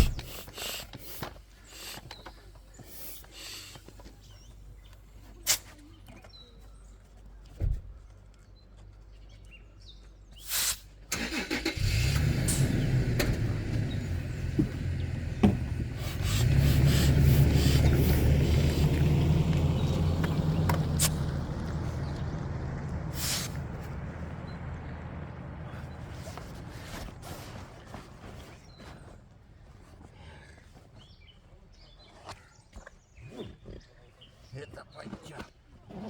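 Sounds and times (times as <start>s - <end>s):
car engine starting and running: 11.1s - 28.4s.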